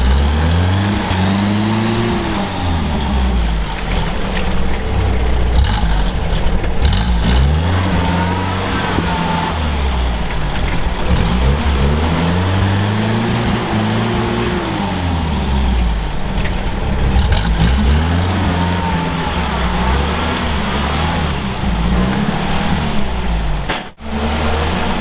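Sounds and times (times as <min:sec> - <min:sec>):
vehicle engine revving: 0:00.0 - 0:25.0.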